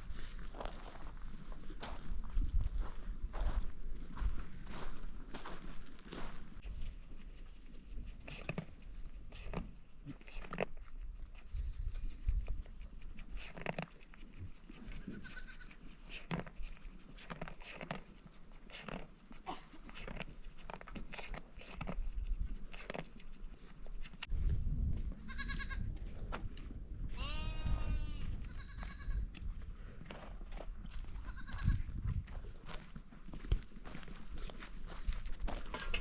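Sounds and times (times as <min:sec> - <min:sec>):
goats bleating: 0:27.2 - 0:29.2.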